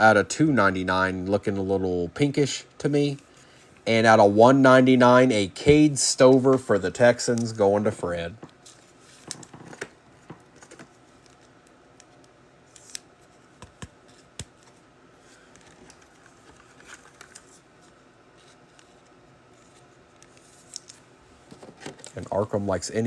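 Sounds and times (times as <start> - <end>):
trading cards being handled: 5.6 - 22.8.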